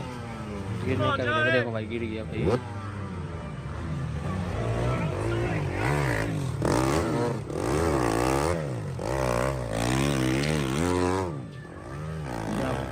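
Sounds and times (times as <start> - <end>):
dirt bike engine revving: 2.3 - 3.1, 4.2 - 12.9.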